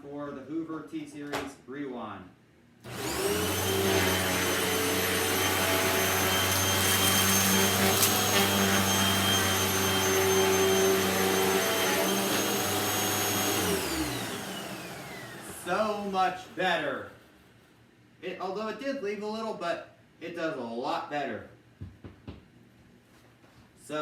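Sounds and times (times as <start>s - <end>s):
vacuum cleaner running: 2.9s - 17.5s.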